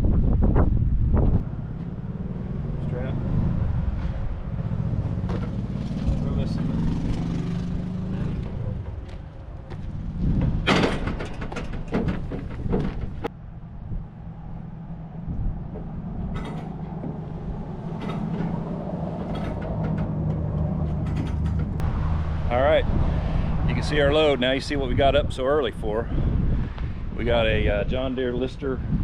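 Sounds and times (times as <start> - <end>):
metallic knocks and clanks: 5.1 - 7.7, 8.3 - 13.3, 15.6 - 21.8.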